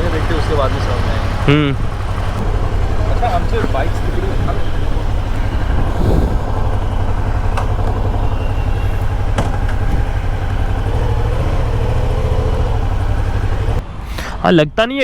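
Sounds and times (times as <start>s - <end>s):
motorcycle engine running: 0.0s - 13.8s
wind on microphone: 1.8s - 11.7s.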